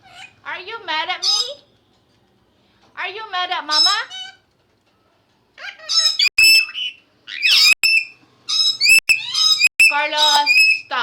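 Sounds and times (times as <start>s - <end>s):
parrots squawking: 0.0s - 0.5s, 1.2s - 1.6s, 3.7s - 4.4s, 5.6s - 10.9s.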